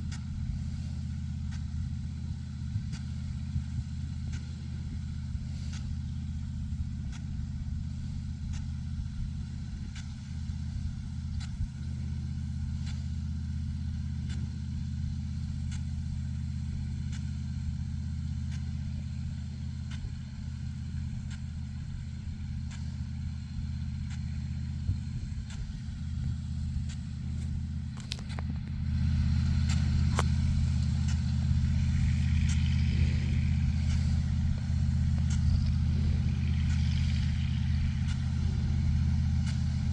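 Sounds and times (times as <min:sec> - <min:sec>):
large engine droning: 0:00.0 - 0:39.9
faint ticks: 0:02.9 - 0:04.6, 0:05.6 - 0:07.4, 0:08.5 - 0:08.8, 0:11.4 - 0:11.7, 0:14.2 - 0:14.5, 0:15.5 - 0:15.9, 0:17.0 - 0:17.5, 0:18.4 - 0:39.9.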